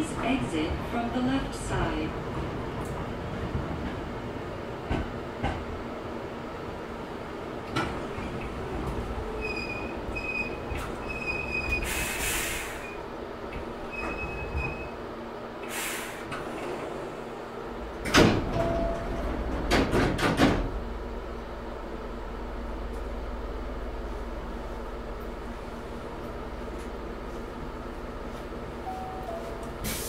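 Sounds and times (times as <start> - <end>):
high brake squeal: 9.4 - 13.0
air hiss: 11.8 - 12.9, 15.6 - 16.4
sliding doors knocking and rattling: 18.0 - 20.8.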